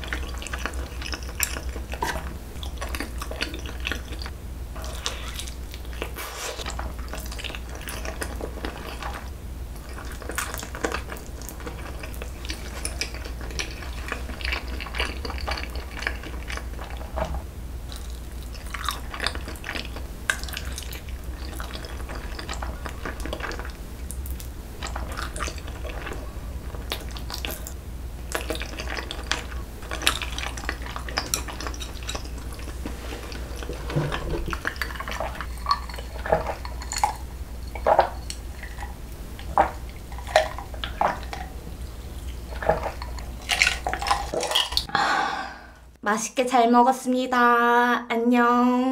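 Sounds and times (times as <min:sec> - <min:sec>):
steady low hum: 0:00.0 - 0:46.1
chewing mouth clicks and smacks: 0:17.9 - 0:41.5.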